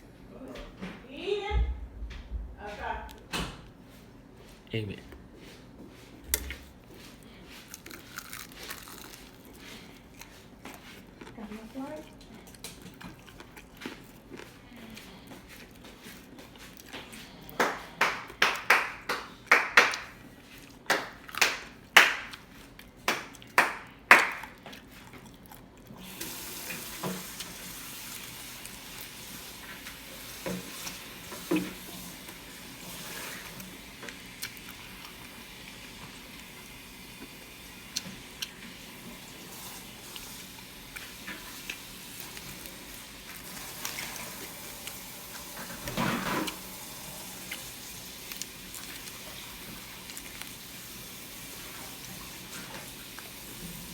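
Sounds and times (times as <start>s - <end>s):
sharp eating strokes: 6.4s - 33.5s, 46.4s - 53.9s.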